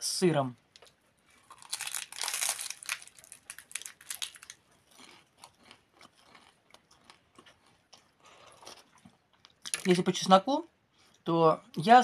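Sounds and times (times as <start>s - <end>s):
person crunching crisp bread: 0.8s - 10.0s.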